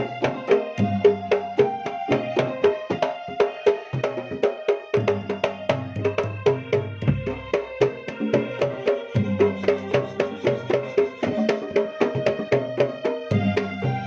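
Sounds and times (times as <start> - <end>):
fast drum strikes: 4.0 - 14.0
deep bass drum: 7.0 - 7.5.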